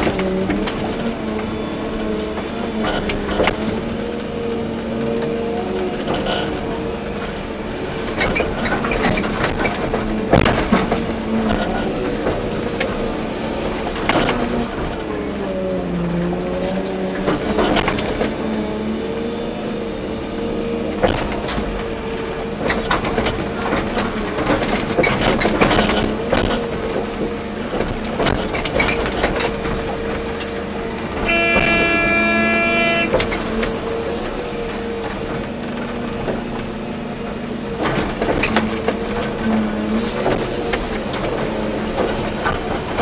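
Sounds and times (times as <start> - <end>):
excavator diesel engine: 0.0 - 43.0
horn: 31.2 - 33.6.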